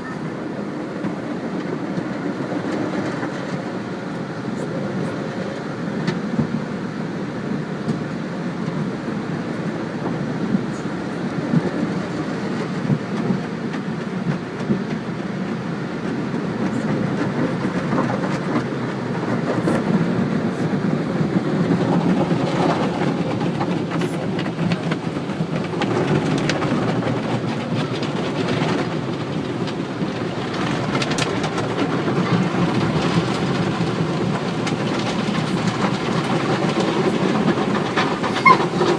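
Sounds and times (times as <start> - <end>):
water spray and spinning brushes: 9.3 - 38.9.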